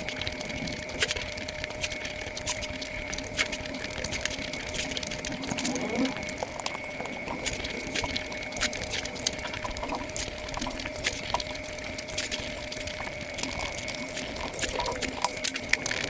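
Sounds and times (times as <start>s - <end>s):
wet eating clicks and smacks: 0.0s - 16.0s.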